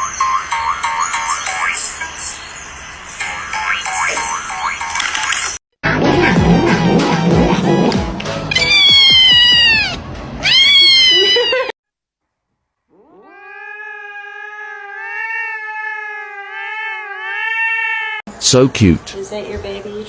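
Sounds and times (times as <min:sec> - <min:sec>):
music: 0:05.8 - 0:10.5
cat yowling: 0:08.5 - 0:11.7, 0:12.9 - 0:18.2.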